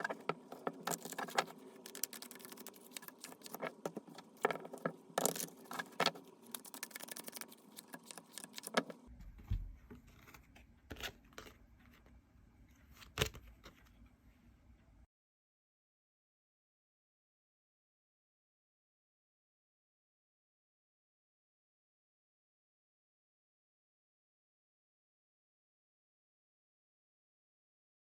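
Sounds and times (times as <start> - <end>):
cards being shuffled: 0.0 - 9.1.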